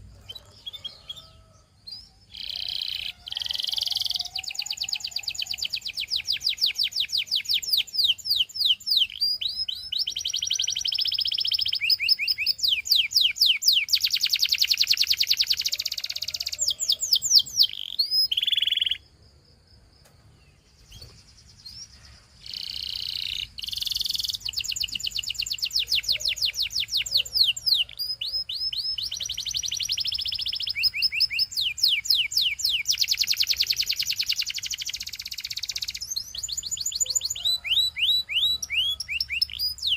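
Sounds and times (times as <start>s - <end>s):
canary singing trills: 0.0s - 19.1s, 20.3s - 39.9s.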